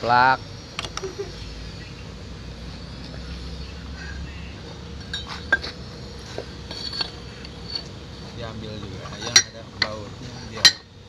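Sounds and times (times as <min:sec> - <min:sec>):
pipe threading machine humming: 0:00.0 - 0:11.0
metallic clinks of pipe and tools: 0:06.7 - 0:07.9.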